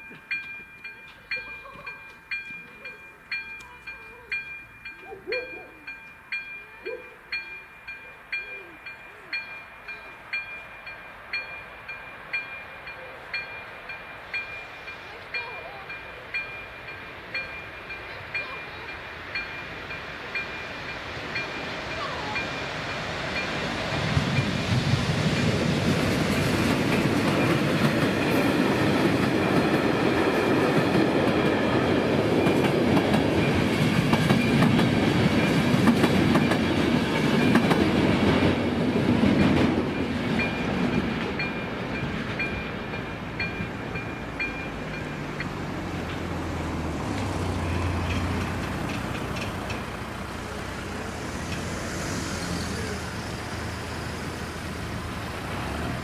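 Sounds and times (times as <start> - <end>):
crossing warning bell dinging: 0.0 - 56.0
road vehicles humming: 0.0 - 56.0
train wheels clattering over rails: 16.4 - 56.0.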